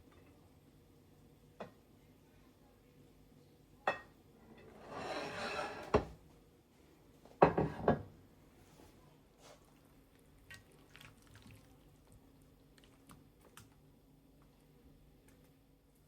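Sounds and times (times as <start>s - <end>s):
dishes clattering: 3.9s - 6.1s, 7.4s - 8.1s.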